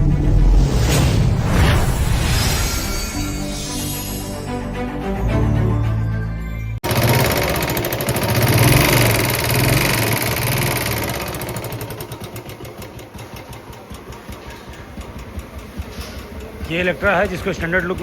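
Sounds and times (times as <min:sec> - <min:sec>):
motorcycle engine running: 0:06.8 - 0:18.0.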